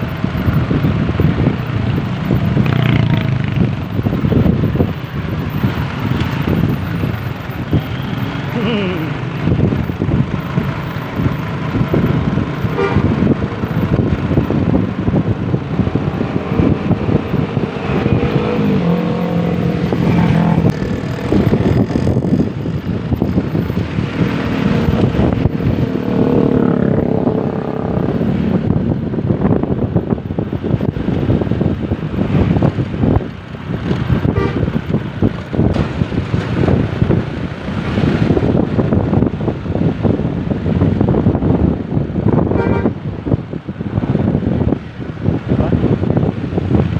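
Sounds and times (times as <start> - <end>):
road and vehicle noise: 0.0 - 46.9
melodic bus horn: 12.7 - 13.2, 34.3 - 34.8, 42.5 - 43.0.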